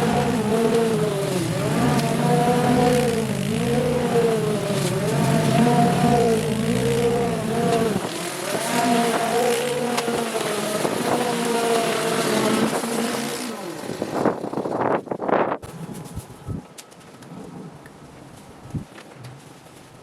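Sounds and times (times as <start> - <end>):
small petrol engine running: 0.0 - 14.9.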